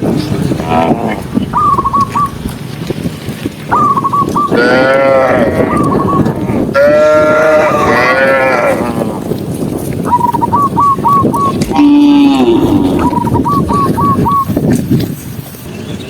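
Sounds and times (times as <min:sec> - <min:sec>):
livestock calling: 0:00.6 - 0:02.4, 0:03.7 - 0:09.2, 0:10.1 - 0:14.6
high warbling whistles: 0:01.5 - 0:02.4, 0:03.7 - 0:04.6, 0:05.7 - 0:06.3, 0:10.1 - 0:11.9, 0:12.6 - 0:14.6.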